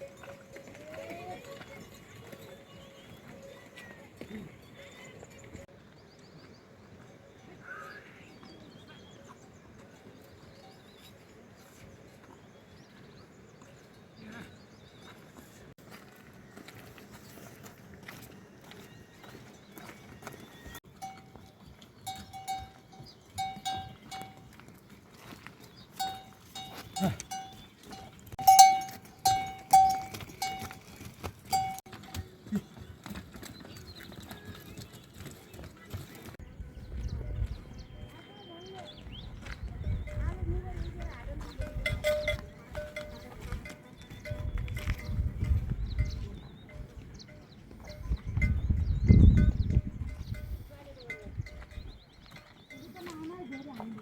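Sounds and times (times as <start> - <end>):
livestock bell clanking: 0.0 - 4.0, 20.8 - 24.7, 25.9 - 32.7, 39.8 - 54.0
small birds chirping: 0.0 - 15.8, 16.4 - 30.6, 31.5 - 54.0.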